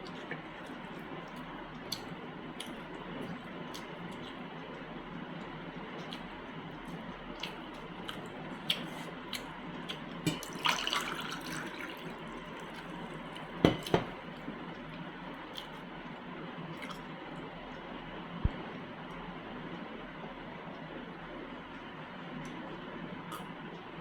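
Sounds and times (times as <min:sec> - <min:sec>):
wet eating sounds: 0:00.0 - 0:17.8, 0:23.3 - 0:23.5.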